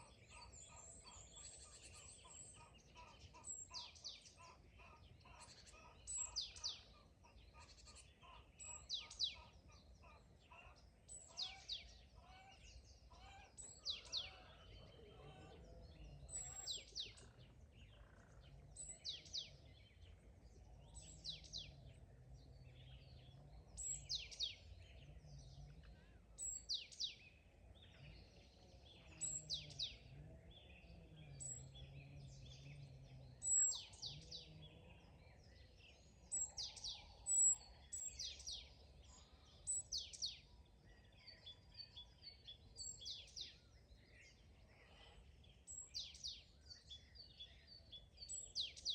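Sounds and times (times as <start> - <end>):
faint bird chirps: 0.0 - 48.9.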